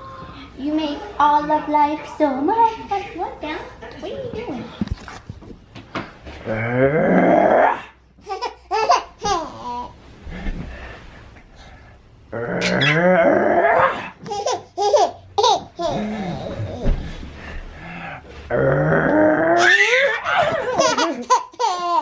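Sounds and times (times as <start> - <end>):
baby laughing and babbling: 8.2 - 10.0, 14.2 - 17.0, 19.6 - 22.0.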